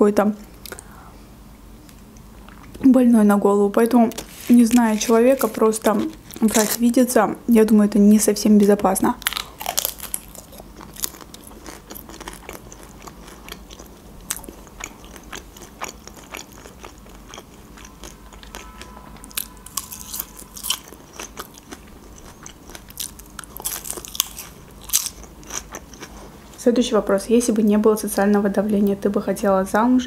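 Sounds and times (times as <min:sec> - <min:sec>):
crisp crunching bite: 0:09.2 - 0:18.6, 0:19.3 - 0:26.1
chewing with mouth clicks: 0:09.2 - 0:26.3.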